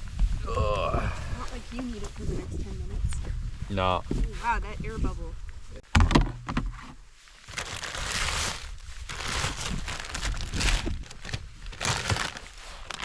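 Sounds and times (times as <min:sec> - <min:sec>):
plastic rustling and crinkling: 0:07.3 - 0:13.0.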